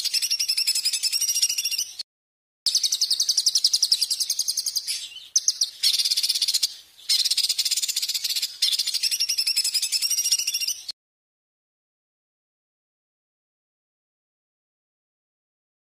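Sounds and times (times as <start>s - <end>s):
songbird trilling: 0.0s - 2.0s, 2.7s - 11.0s.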